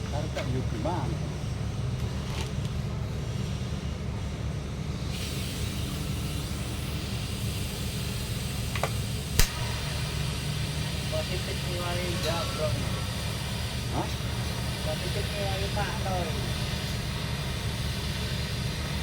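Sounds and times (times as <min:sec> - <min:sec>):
steady high hiss: 0:05.2 - 0:19.0
sharp click: 0:08.8 - 0:09.6.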